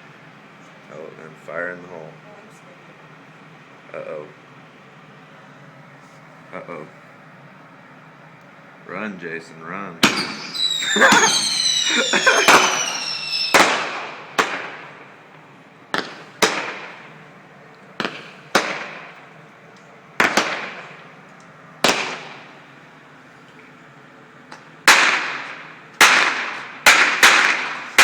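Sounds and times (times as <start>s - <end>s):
firework whistle: 10.0s - 14.8s
fireworks bangs echoing: 10.0s - 15.1s, 15.9s - 17.2s, 18.0s - 19.2s, 20.2s - 21.1s, 21.8s - 22.5s, 24.9s - 28.0s.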